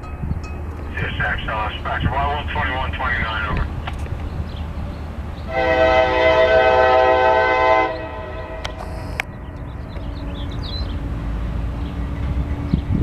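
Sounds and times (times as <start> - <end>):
low train rumble: 0.0 - 13.0
locomotive air horn blast: 5.5 - 9.2.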